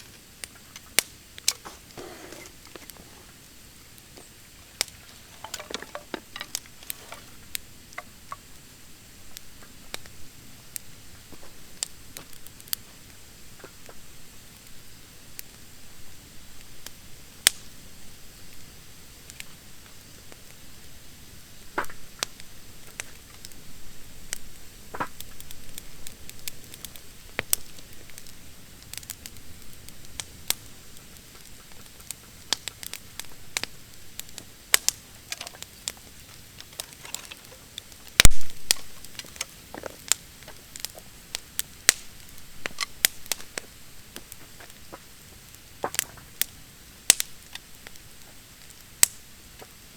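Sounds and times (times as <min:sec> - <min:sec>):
sharp pops of burning wood: 0:00.0 - 0:08.6, 0:16.8 - 0:17.8, 0:24.3 - 0:49.8
campfire crackling: 0:00.0 - 0:49.9.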